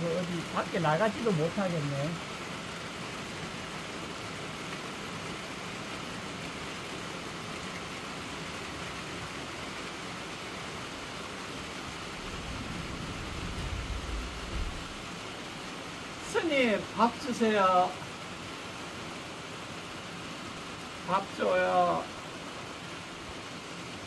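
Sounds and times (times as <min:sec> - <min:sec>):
heavy rain hissing: 0:00.0 - 0:24.0
low rumble: 0:12.0 - 0:15.3.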